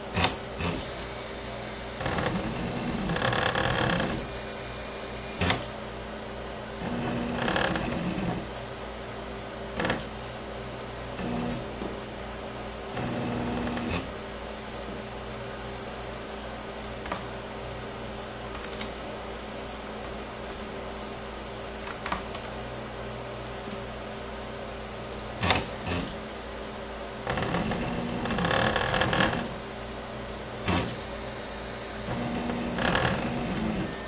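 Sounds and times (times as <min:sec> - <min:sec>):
stepper motors humming: 0:00.1 - 0:05.8.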